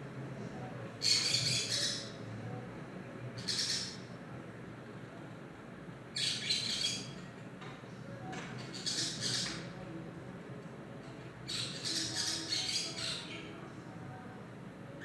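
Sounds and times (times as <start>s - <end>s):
birds squawking and chirping: 1.0s - 2.2s, 3.4s - 4.1s, 6.2s - 7.3s, 8.6s - 9.6s, 11.5s - 13.6s.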